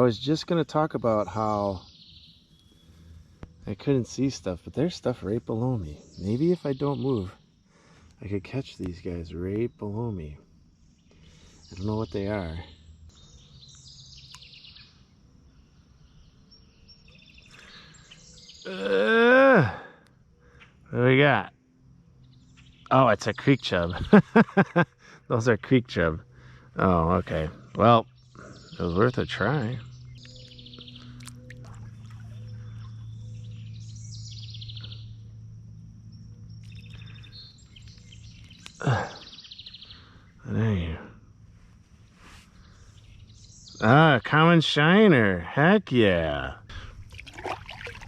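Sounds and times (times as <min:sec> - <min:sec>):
faint bird chirps: 0:00.0 - 0:48.0
songbirds trilling: 0:00.0 - 0:48.0
steady low hum: 0:00.0 - 0:48.0
man's drawn-out exclamation: 0:18.7 - 0:19.9.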